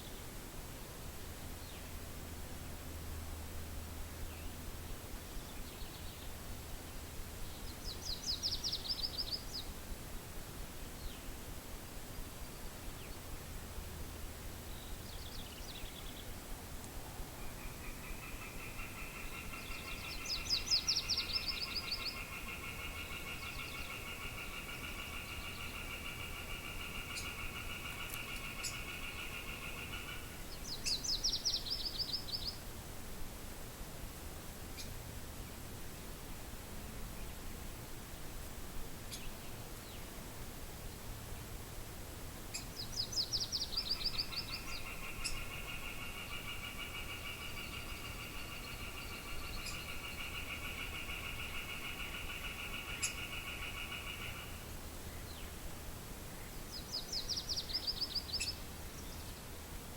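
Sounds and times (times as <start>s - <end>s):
faint wind hiss: 0.0s - 59.9s
songbirds calling: 4.1s - 11.5s, 12.4s - 32.7s, 34.7s - 37.4s, 39.0s - 40.2s, 42.4s - 59.8s
bird pulsing trill: 43.8s - 54.6s.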